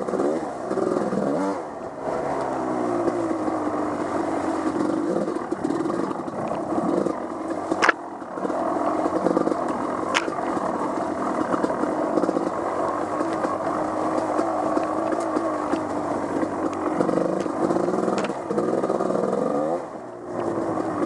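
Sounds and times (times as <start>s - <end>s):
off-road vehicle engine revving: 0.0s - 21.0s.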